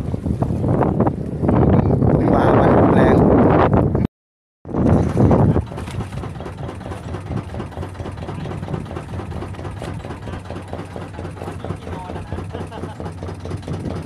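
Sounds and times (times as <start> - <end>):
wind on microphone: 0.0 - 14.0
engine idling: 5.2 - 14.0.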